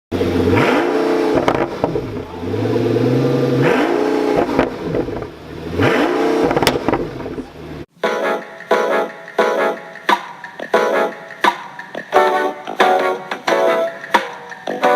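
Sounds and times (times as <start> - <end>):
car engine revving: 0.1 - 7.9
exhaust pops and crackles: 0.2 - 2.4, 3.5 - 7.8.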